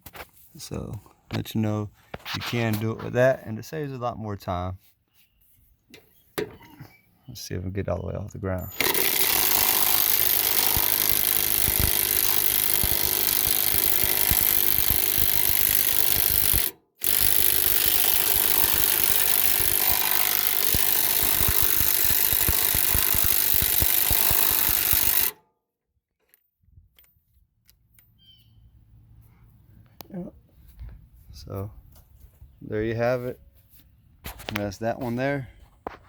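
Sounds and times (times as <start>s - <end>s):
impact driver hammering: 8.7s - 25.4s.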